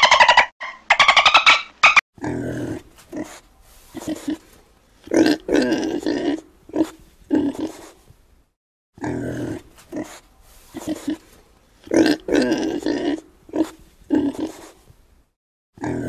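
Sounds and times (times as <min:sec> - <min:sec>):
pig grunting: 0:02.2 - 0:08.0, 0:09.0 - 0:14.8, 0:15.8 - 0:16.0.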